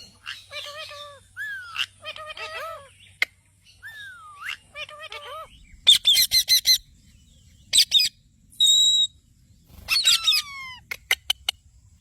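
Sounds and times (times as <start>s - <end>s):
parrot calling: 0.1s - 6.8s, 9.8s - 11.5s.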